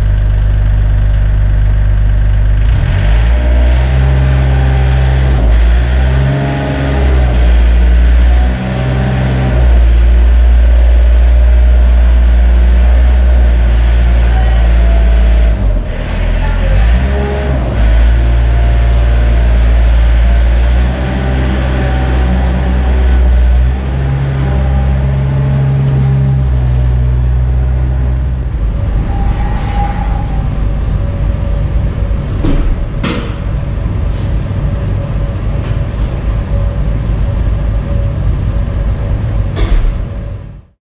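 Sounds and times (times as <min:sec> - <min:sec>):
diesel engine running: 0:00.0 - 0:40.7
sliding door rumbling and rattling: 0:00.0 - 0:40.7
sharp clunks: 0:39.6 - 0:40.1.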